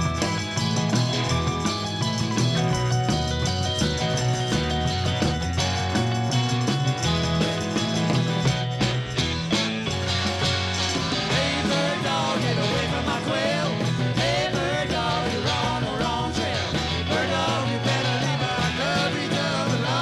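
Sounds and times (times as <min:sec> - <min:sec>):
rock and roll band playing: 0:00.0 - 0:20.0
person singing: 0:11.3 - 0:20.0.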